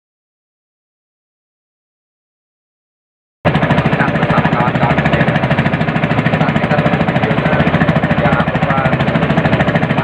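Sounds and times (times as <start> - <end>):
small engine chugging: 3.5 - 10.0.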